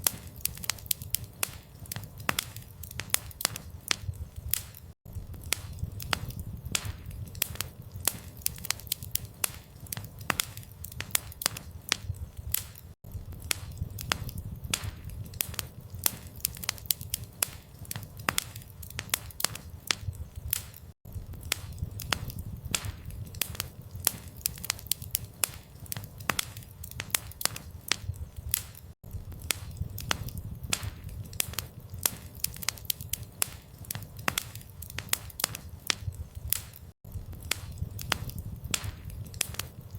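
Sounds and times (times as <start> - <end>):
campfire crackling: 0.0 - 39.9
steady low rumble: 4.0 - 8.3, 13.0 - 16.3.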